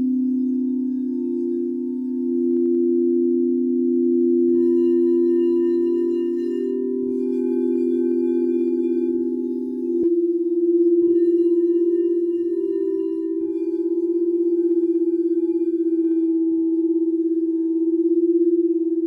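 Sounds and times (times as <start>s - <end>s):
singing bowls ringing: 0.0s - 19.0s
singing bowl being struck: 4.4s - 19.0s.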